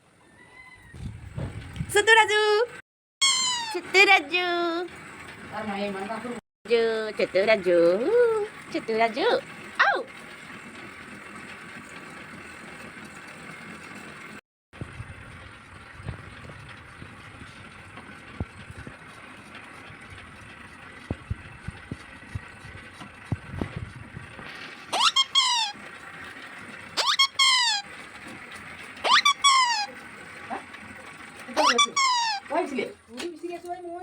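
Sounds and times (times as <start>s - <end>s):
parrot squeaky calls: 3.2s - 3.8s, 24.9s - 25.8s, 27.0s - 27.8s, 29.0s - 29.9s, 31.6s - 32.5s.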